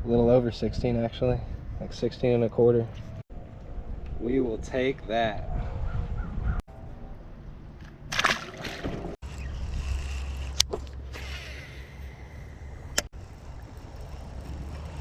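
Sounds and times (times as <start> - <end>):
wind buffeting microphone: 3.1 - 6.6
water splash: 8.1 - 9.2.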